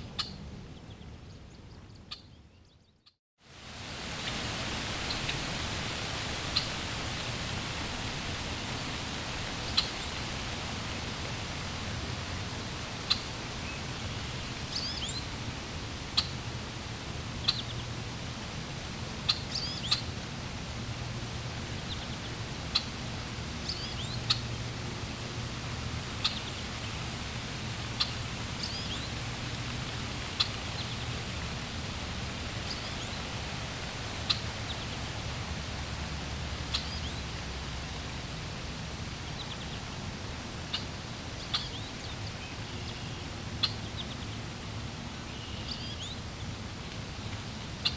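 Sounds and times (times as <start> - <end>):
flowing water rushing: 3.4 - 47.9
small birds chirping: 19.3 - 20.1, 34.2 - 35.0, 36.7 - 37.3, 40.7 - 44.4.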